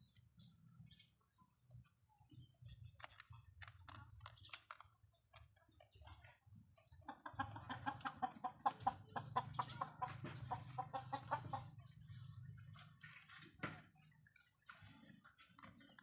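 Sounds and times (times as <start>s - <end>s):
rapid clucking calls: 5.3s - 13.5s.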